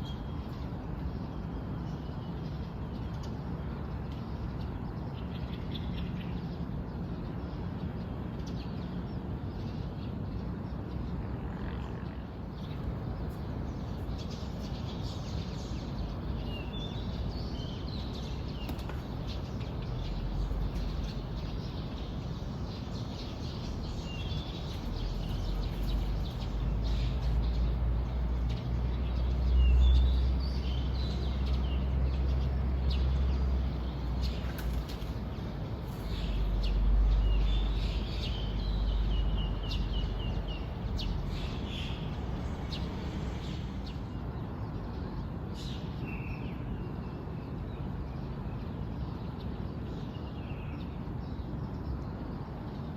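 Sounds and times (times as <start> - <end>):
small birds chirping: 12.1 - 46.4.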